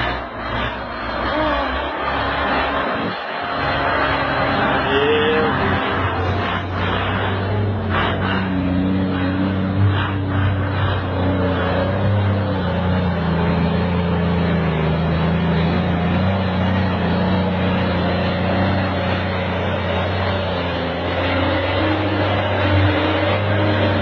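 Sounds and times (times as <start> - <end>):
heavy machinery engine running: 0.0 - 24.0.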